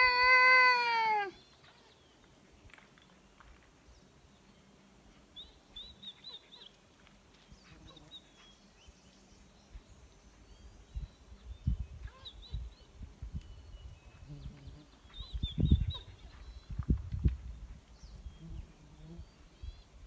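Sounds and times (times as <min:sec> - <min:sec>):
small bird chirping: 0:07.6 - 0:17.0.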